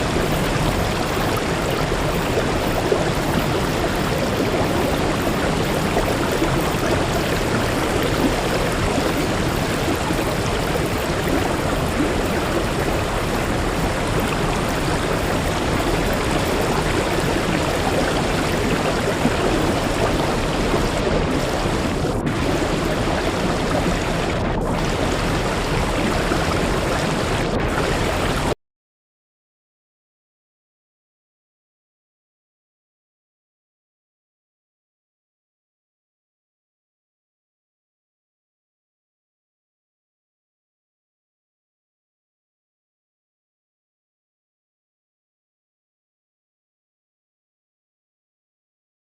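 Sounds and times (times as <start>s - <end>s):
waterfall rushing: 0.0s - 28.5s.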